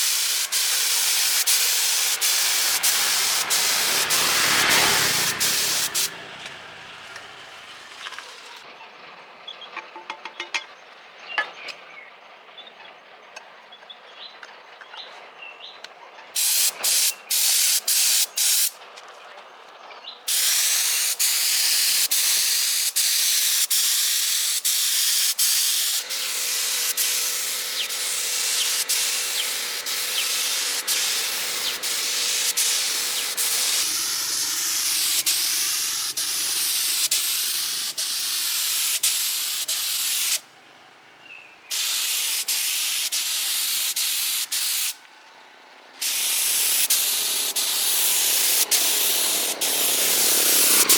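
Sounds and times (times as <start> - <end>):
air gun hissing: 0.0 - 8.6, 16.4 - 18.8, 20.3 - 40.4, 41.7 - 45.0, 46.0 - 50.9.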